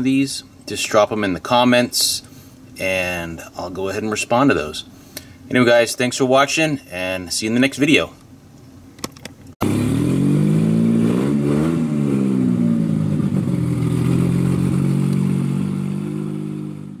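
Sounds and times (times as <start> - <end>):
car engine revving: 9.6 - 17.0.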